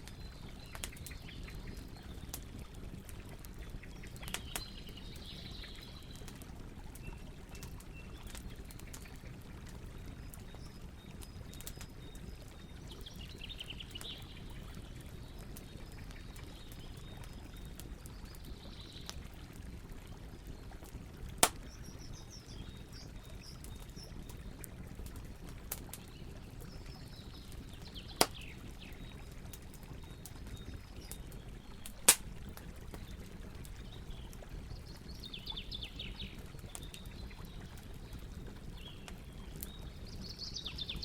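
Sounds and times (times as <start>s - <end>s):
campfire crackling: 0.0s - 41.0s
sharp fire pops: 21.4s - 21.8s, 28.1s - 28.5s, 31.8s - 32.4s.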